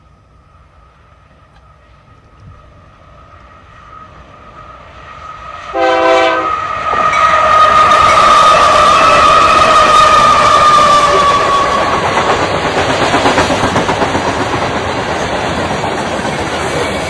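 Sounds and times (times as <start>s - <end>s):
diesel locomotive engines: 0.0s - 17.0s
train wheels on rails: 0.0s - 17.0s
train horn blast: 5.7s - 9.6s.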